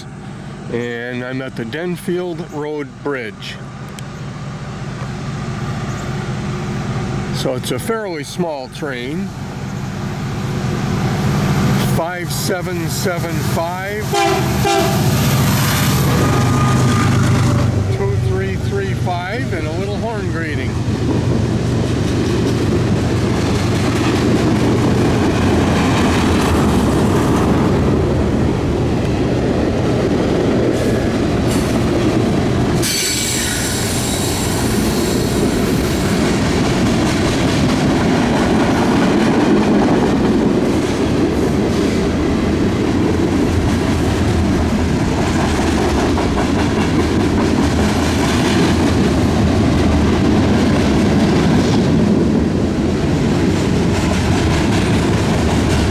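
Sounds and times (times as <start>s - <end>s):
freight train wheels clattering: 9.0s - 55.9s
metallic wheel squeal: 32.8s - 36.1s.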